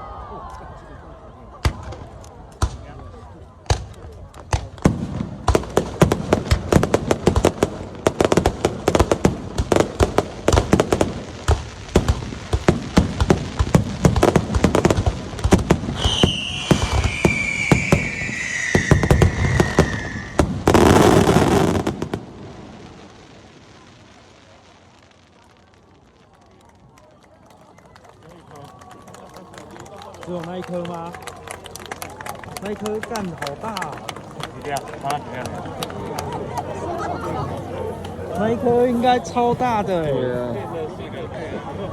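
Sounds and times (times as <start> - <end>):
fireworks bangs: 3.6 - 27.0
firework whistle falling in pitch: 16.0 - 20.4.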